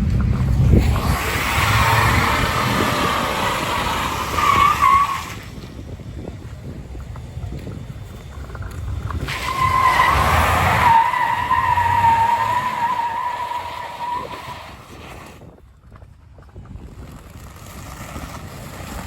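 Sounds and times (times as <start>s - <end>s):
high-pitched tire squeal: 0.8s - 5.6s, 9.1s - 15.4s.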